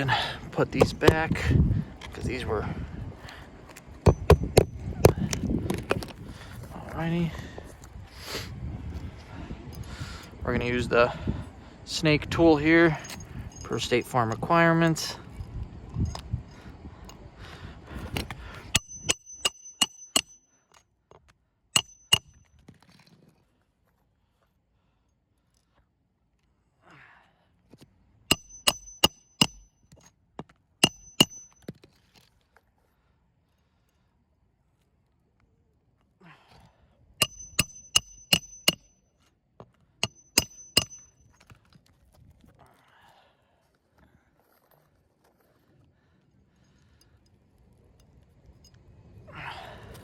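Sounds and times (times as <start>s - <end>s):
hammer striking metal tool: 4.0s - 4.8s, 18.7s - 20.4s, 21.8s - 22.4s, 28.3s - 29.7s, 30.8s - 31.6s, 37.2s - 38.9s, 40.0s - 41.2s.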